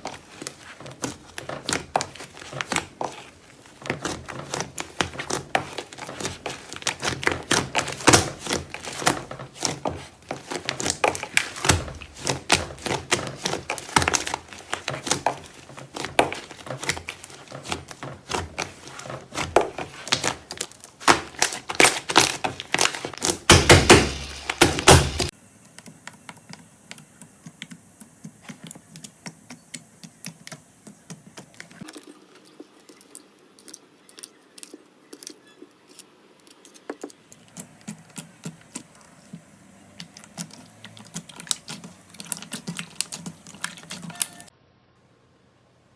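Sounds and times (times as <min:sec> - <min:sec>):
slime clicking and popping: 0:40.0 - 0:44.5.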